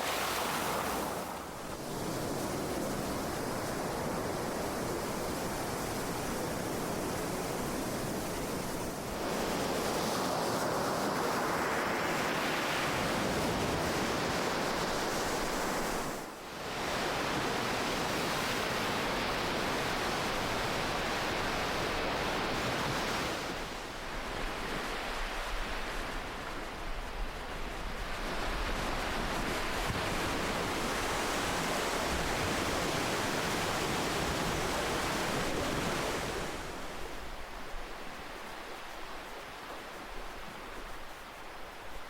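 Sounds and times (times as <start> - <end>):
ocean waves breaking: 0.0 - 3.0.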